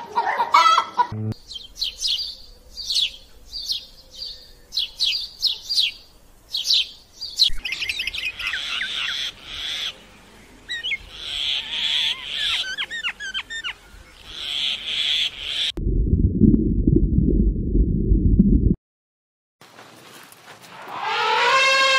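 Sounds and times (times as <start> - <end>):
sparrows chirping: 1.4 - 15.7.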